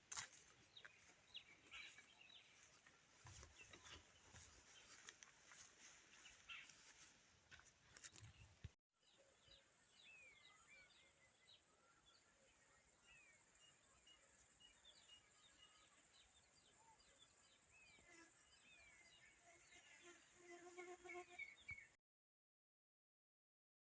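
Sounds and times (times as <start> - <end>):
faint bird calls: 6.1 - 7.0.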